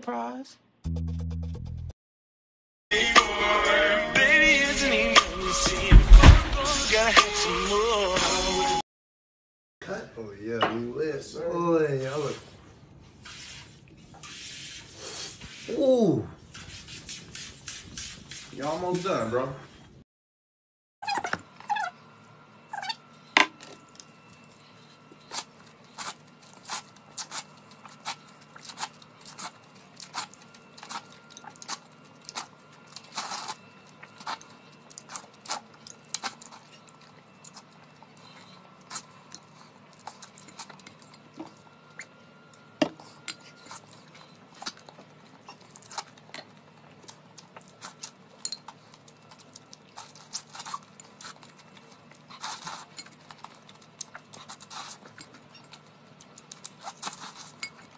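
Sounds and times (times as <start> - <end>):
wet chewing and lip smacks: 43.0 - 57.9.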